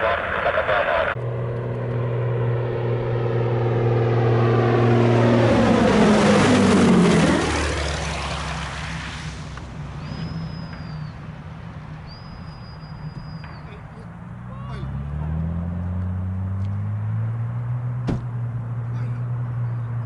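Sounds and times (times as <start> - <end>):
propeller aircraft passing: 0.0 - 20.0.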